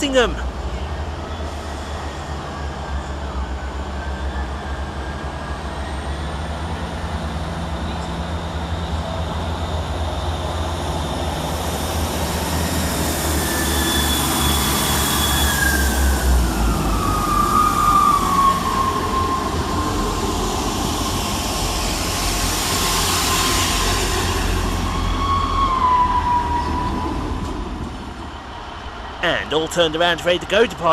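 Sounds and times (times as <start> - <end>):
train rumbling: 0.0 - 30.9.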